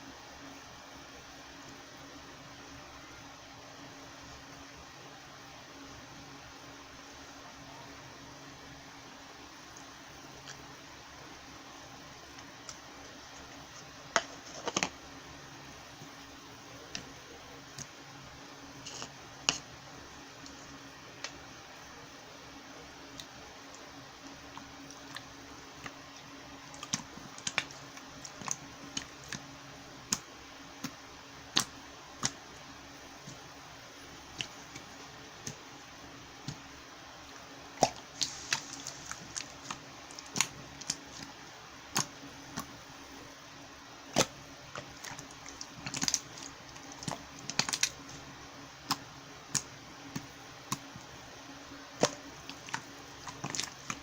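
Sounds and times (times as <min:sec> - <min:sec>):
slime clicking and popping: 0:44.1 - 0:48.0.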